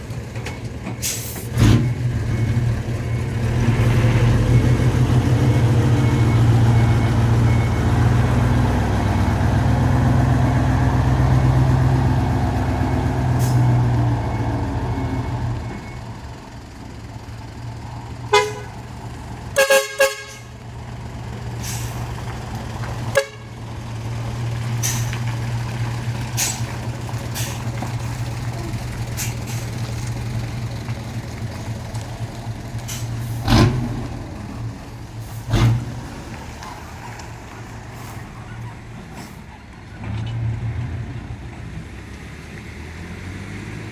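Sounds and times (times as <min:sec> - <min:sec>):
truck diesel engine rumbling: 0:00.0 - 0:43.9
trumpet air horn blasts: 0:18.3 - 0:18.8, 0:19.6 - 0:20.5, 0:23.2 - 0:23.5.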